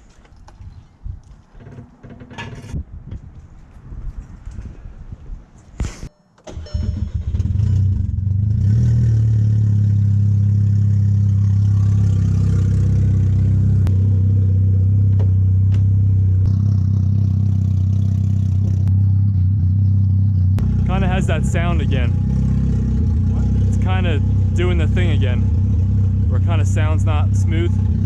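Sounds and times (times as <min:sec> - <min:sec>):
car engine starting and idling: 0:06.5 - 0:28.0.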